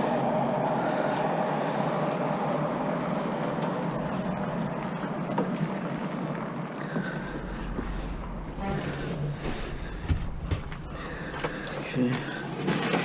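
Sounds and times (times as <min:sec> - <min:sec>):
vehicle rumbling on the move: 0:00.0 - 0:12.5
faint rattles: 0:03.9 - 0:13.0.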